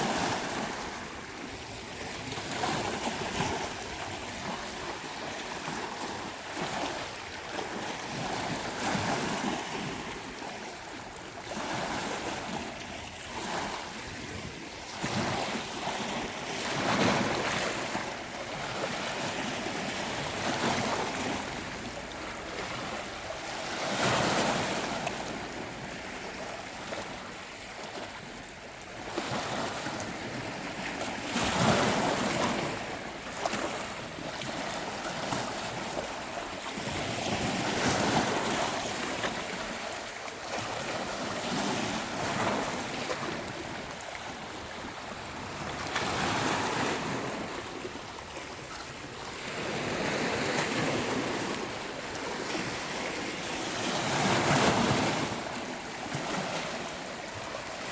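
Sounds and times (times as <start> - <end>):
sea waves breaking on beach: 0.0 - 57.9.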